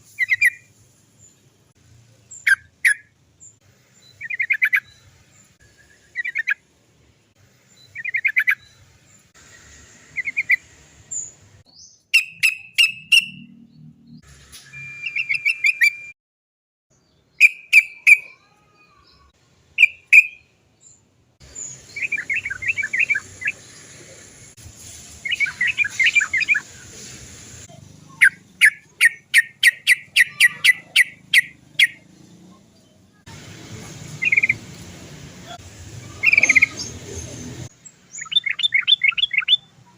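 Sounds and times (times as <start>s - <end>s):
bulbul calling: 0.2s - 0.7s, 4.1s - 5.0s, 7.8s - 8.8s, 11.2s - 13.7s, 17.4s - 18.4s, 19.8s - 20.5s, 21.5s - 23.9s, 28.1s - 32.1s, 34.2s - 34.6s, 35.5s - 37.5s, 38.1s - 39.7s.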